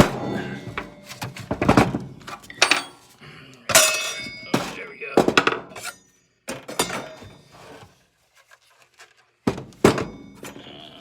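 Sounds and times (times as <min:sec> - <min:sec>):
metallic clinks and knocks: 0:00.3 - 0:04.8, 0:05.4 - 0:07.5.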